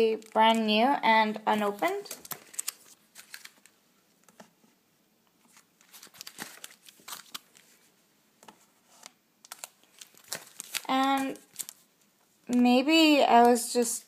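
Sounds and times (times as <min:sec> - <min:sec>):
packaging crinkling: 0:01.5 - 0:03.8, 0:05.4 - 0:07.9, 0:09.0 - 0:11.9.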